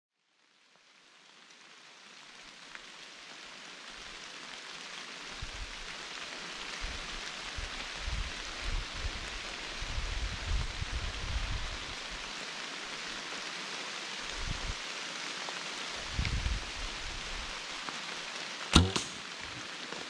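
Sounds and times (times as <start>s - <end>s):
rain falling on leaves: 0.2s - 20.0s.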